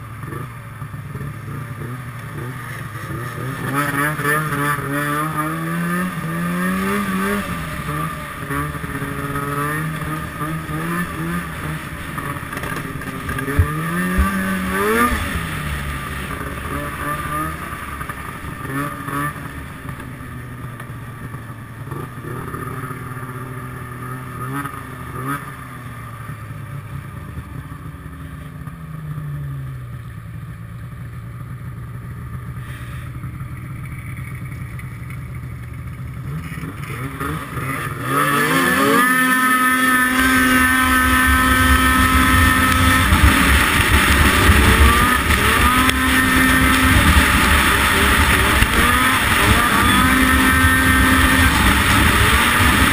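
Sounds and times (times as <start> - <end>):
snowmobile engines running: 0.0 - 52.9
loud engine revving: 1.8 - 19.7, 36.3 - 52.9.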